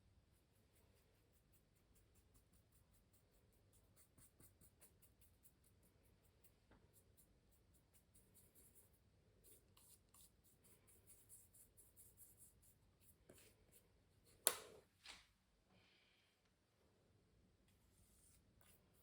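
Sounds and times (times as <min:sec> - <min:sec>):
pencil scratching on canvas: 0:00.4 - 0:13.8.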